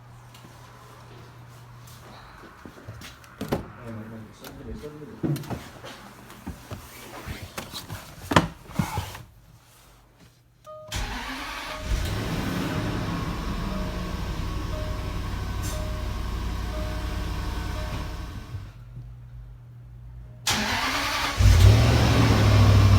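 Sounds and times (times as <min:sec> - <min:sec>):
car engine starting and idling: 0:10.9 - 0:18.8, 0:20.4 - 0:22.9
short chime: 0:14.7 - 0:18.3.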